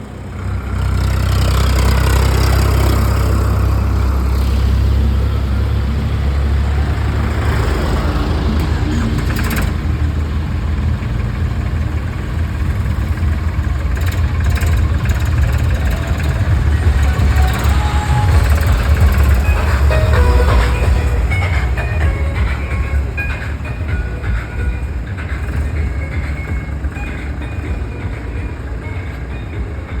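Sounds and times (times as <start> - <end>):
tractor diesel engine droning: 0.0 - 30.0
music playing: 14.0 - 30.0.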